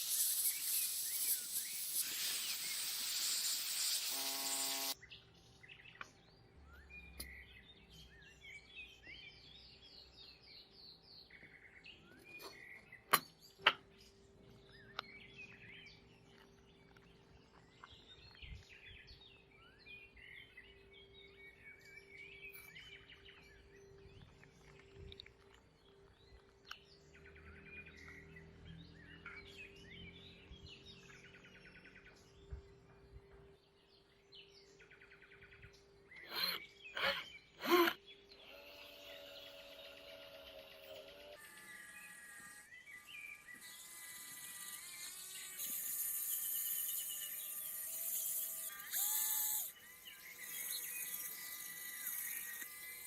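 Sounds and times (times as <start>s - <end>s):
loud hiss: 0.0s - 5.0s
small birds chirping: 0.0s - 53.0s.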